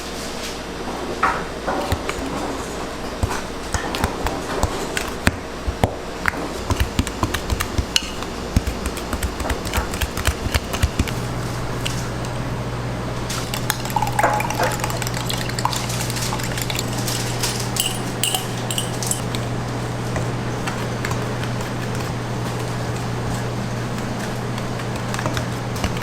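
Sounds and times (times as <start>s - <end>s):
utensils and dishes clinking: 13.4s - 19.3s.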